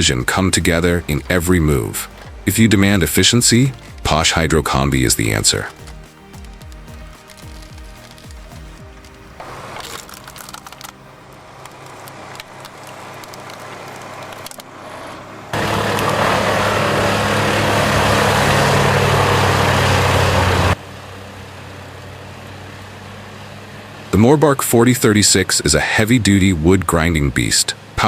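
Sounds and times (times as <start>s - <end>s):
machine engine running hard: 0.0s - 24.2s.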